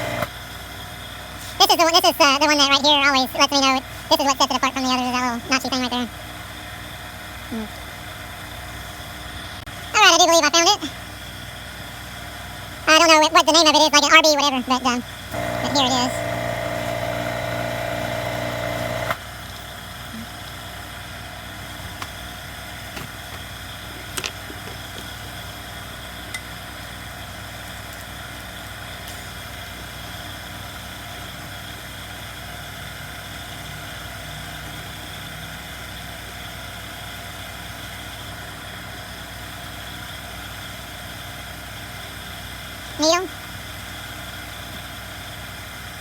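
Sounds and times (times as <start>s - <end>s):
machine hum: 0.0s - 0.3s, 15.3s - 19.2s.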